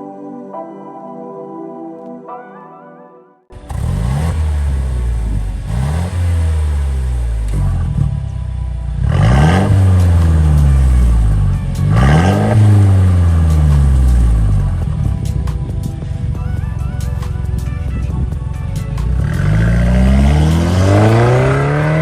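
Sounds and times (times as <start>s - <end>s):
car engine revving: 3.5s - 16.4s, 17.0s - 22.0s.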